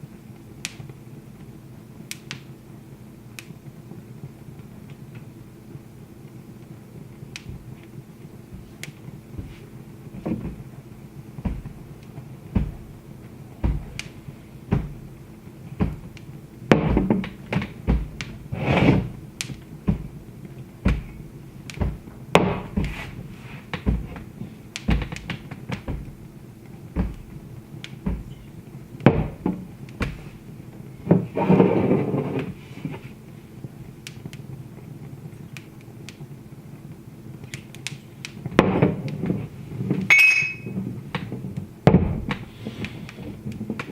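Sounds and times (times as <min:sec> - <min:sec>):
fire pops and snaps: 0:00.0 - 0:43.9
wood fire crackling: 0:00.0 - 0:43.9.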